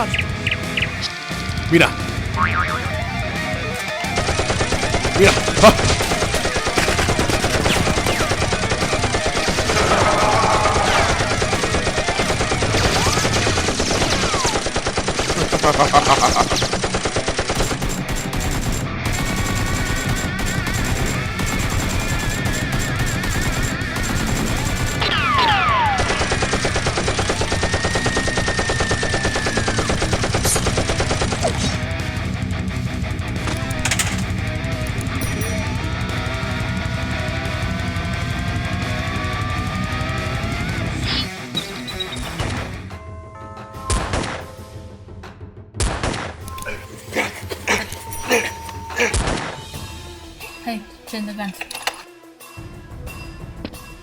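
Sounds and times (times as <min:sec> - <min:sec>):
rapid automatic gunfire: 0:04.2 - 0:31.8.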